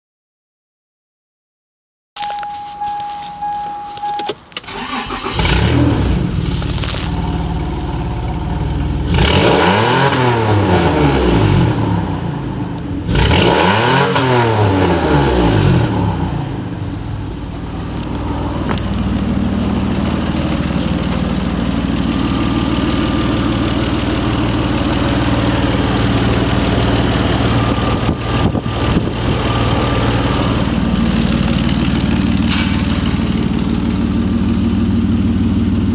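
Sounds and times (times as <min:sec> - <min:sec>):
steady beep: 0:02.2 - 0:04.4
car engine starting and revving: 0:02.3 - 0:35.9.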